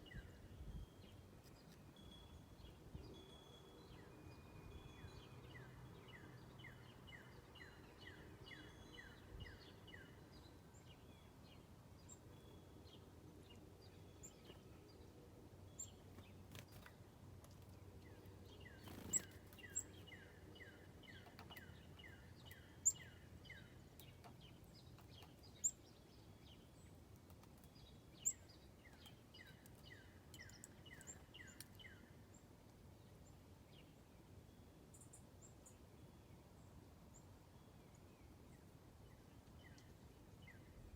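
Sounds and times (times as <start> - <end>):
songbirds calling: 4.7 - 34.2.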